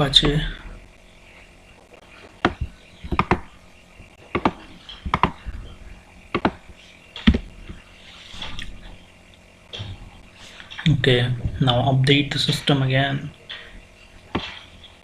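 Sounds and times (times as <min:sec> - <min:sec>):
computer keyboard keys clicking: 0:02.4 - 0:03.4, 0:04.4 - 0:05.4.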